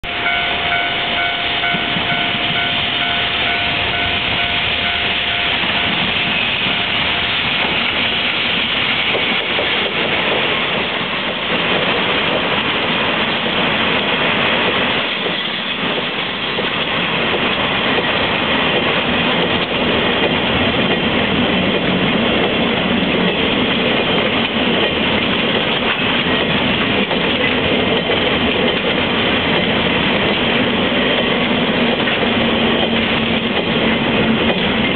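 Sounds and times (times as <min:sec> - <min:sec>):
repeating high tone: 0:00.0 - 0:07.4
freight train wheels clattering: 0:00.0 - 0:34.9.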